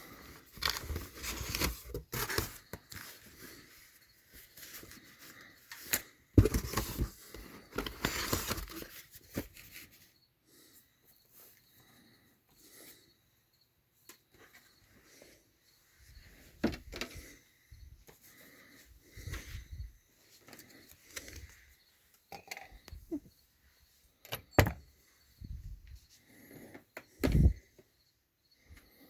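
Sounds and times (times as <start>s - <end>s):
clicks and knocks: 24.3s - 24.8s.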